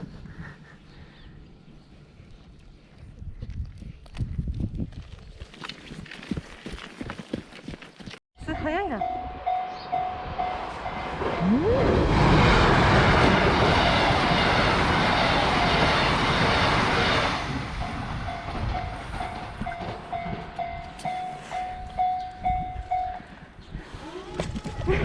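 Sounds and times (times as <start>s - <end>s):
train passing at speed: 8.8s - 23.5s.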